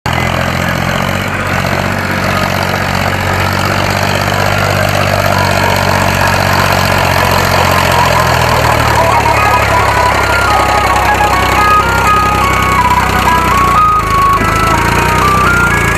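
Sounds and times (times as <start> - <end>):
diesel engine running: 0.1 - 15.9
music: 5.0 - 15.9.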